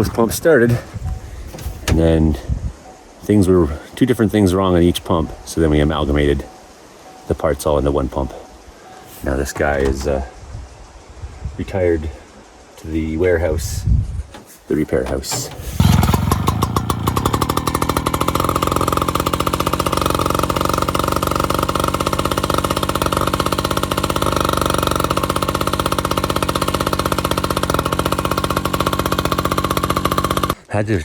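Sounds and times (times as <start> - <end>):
small pump engine running: 15.2 - 30.6.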